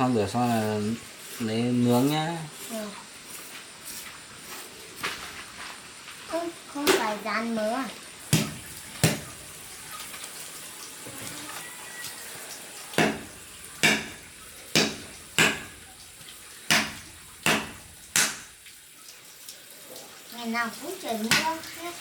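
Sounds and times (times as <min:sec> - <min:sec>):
cleaver chopping meat on board: 0:08.3 - 0:09.4, 0:13.0 - 0:15.8, 0:16.7 - 0:18.6, 0:21.3 - 0:21.7.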